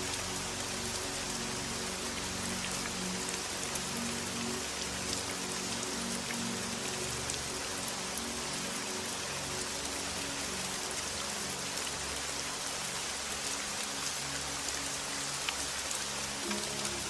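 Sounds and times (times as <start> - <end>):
rain hiss: 0.0 - 17.0
soft low sustained music: 0.0 - 17.0
rain drop ticks: 15.4 - 17.0.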